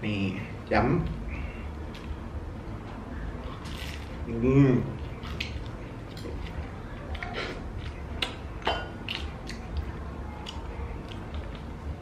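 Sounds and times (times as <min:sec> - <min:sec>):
bread being chewed: 0:03.4 - 0:04.3, 0:04.9 - 0:08.4, 0:09.0 - 0:12.0.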